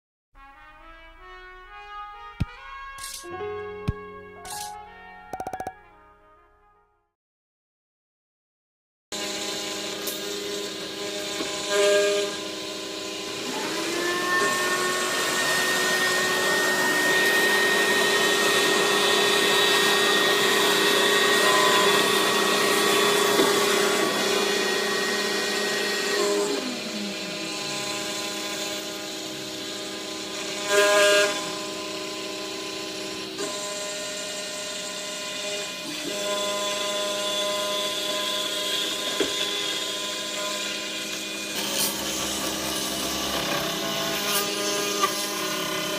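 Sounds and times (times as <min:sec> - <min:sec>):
cnc router humming and whining: 0:09.2 - 0:45.9.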